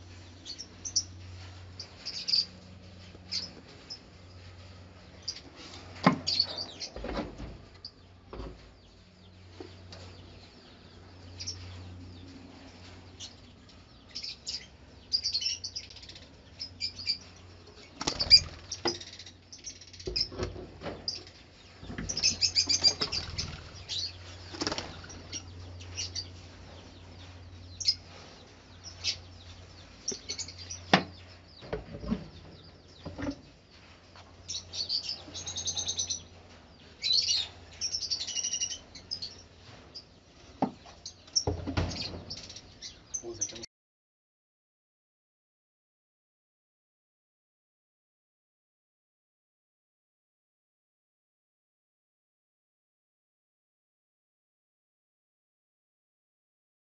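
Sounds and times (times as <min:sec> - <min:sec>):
lovebirds chirping: 0:00.0 - 0:43.7
knocks and rattles from nest boxes: 0:04.8 - 0:10.5, 0:16.8 - 0:27.9, 0:29.0 - 0:38.3, 0:38.9 - 0:43.6
wings flapping: 0:17.9 - 0:18.8, 0:22.2 - 0:25.4.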